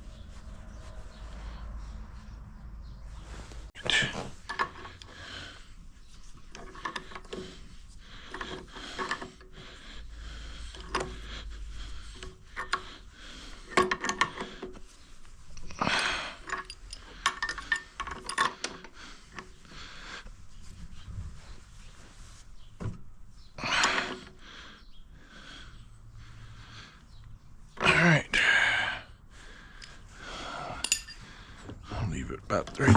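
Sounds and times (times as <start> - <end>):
metal pipe fittings clinking: 4.4 - 5.2, 6.4 - 7.6, 8.3 - 9.5, 13.6 - 14.8, 15.6 - 19.5, 30.7 - 31.3.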